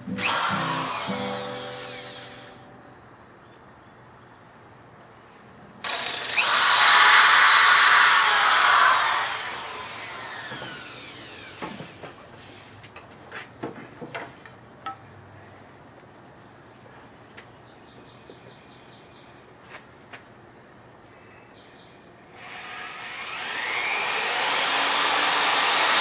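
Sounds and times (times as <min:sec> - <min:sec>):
power tool whirring: 0:00.1 - 0:02.7, 0:05.8 - 0:12.2, 0:22.4 - 0:26.0.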